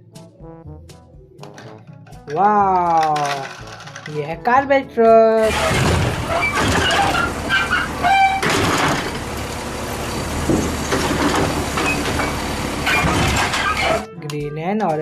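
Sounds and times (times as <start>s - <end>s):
truck engine rumble: 5.3s - 14.1s
high squeals: 5.5s - 9.1s.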